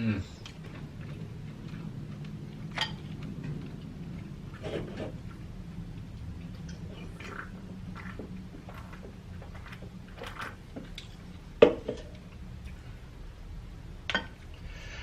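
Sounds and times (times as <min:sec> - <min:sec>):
chewing: 0:00.2 - 0:11.3.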